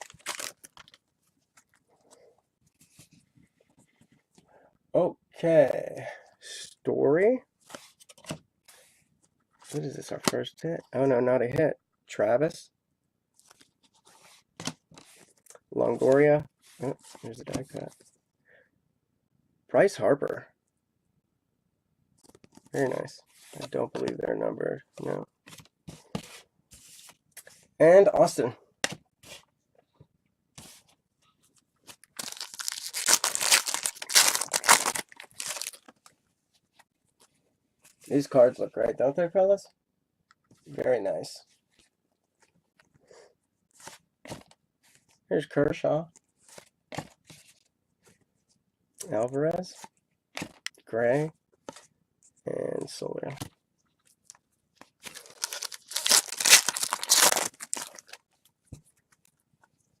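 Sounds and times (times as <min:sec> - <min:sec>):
wrapper crinkling and tearing: 0:00.0 - 0:01.0, 0:32.0 - 0:35.9, 0:55.0 - 0:58.2.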